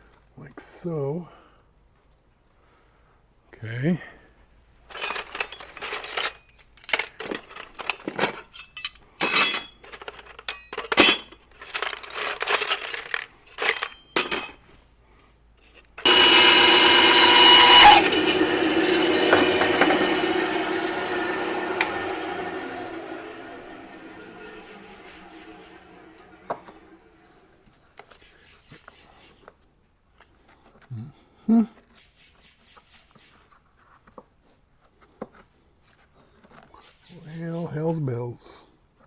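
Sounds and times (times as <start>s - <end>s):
metal hardware clinking: 5.0s - 14.6s
power tool motor running: 16.0s - 27.4s.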